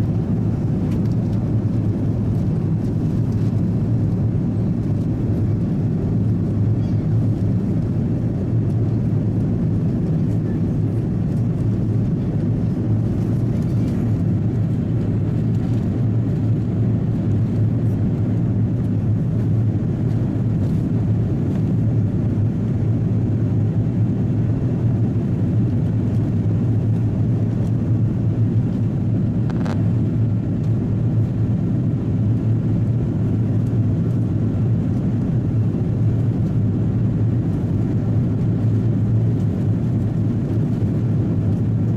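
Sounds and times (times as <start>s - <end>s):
airliner cabin engine drone: 0.0s - 41.9s.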